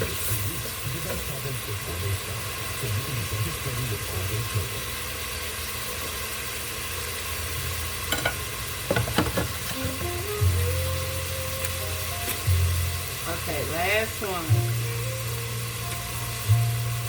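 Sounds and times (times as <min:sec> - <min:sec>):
meat sizzling in a pan: 0:00.0 - 0:17.0.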